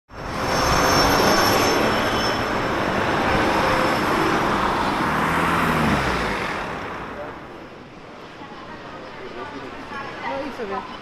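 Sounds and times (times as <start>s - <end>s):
train running: 0.1s - 4.7s
thin high squeal: 0.4s - 2.7s.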